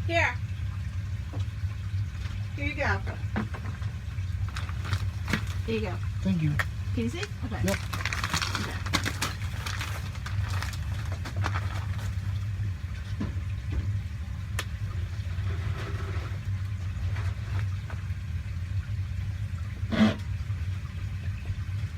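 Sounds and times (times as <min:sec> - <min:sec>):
low mechanical hum: 0:00.0 - 0:21.9.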